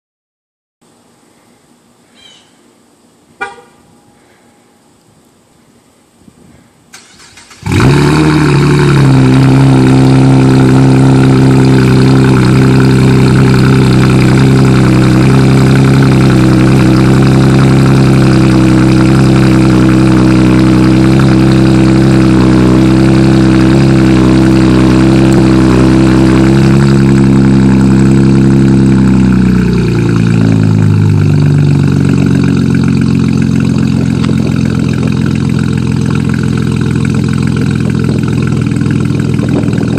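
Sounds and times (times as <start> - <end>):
engine cranking: 6.9 - 8.7, 31.0 - 39.9
car engine idling loudly: 7.4 - 39.9.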